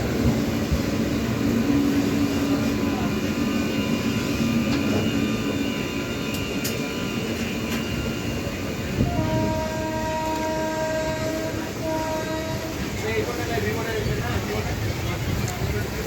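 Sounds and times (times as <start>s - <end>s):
train wheels rumbling on track: 0.0s - 16.0s
train horn: 2.2s - 13.1s.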